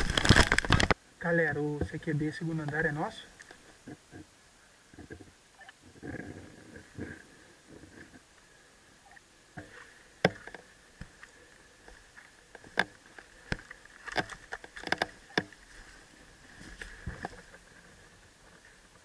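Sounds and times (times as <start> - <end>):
sharp clicks and knocks: 9.6 - 11.2, 11.9 - 15.6.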